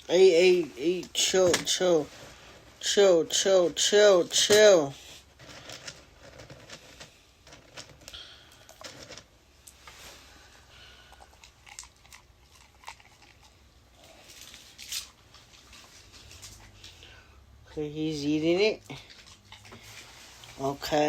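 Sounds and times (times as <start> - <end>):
dog chewing a treat: 11.1 - 16.7, 19.0 - 19.8.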